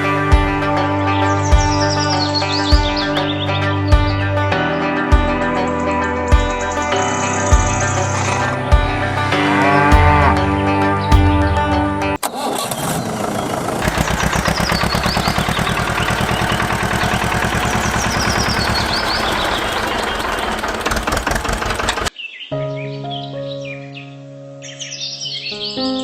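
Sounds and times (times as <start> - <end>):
small engine cranking and running: 12.2 - 22.1.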